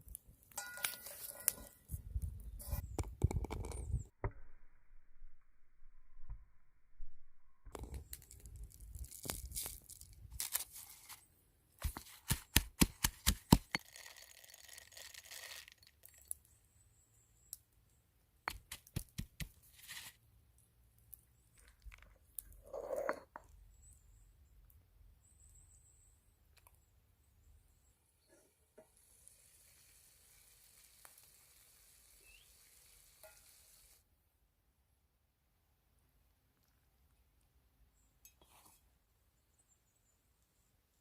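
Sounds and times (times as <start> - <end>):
tearing and crunching: 8.0 - 11.2.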